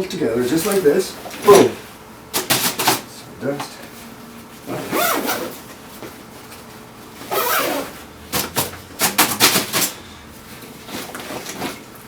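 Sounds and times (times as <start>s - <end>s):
backpack sharp rasps and clicks: 7.3s - 10.0s.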